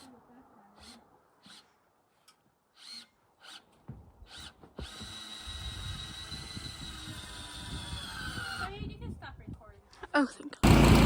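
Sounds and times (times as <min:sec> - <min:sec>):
power drill whining: 0:02.7 - 0:03.7, 0:04.3 - 0:08.8, 0:10.6 - 0:11.0.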